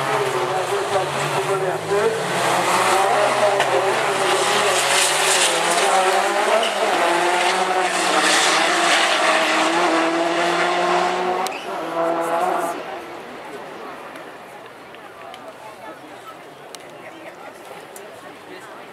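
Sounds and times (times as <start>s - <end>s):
race car engines revving: 0.0s - 14.4s.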